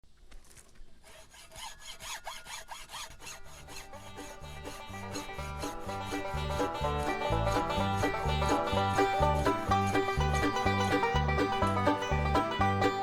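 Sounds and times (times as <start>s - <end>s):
rhythmic rasping strokes: 1.1s - 13.0s
banjo bluegrass music: 3.5s - 13.0s.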